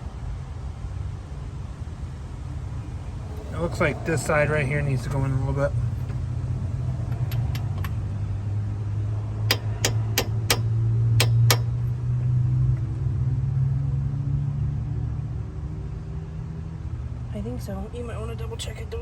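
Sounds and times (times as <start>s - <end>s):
low engine hum: 0.0s - 19.0s
sharp knocks on a part: 9.5s - 12.4s.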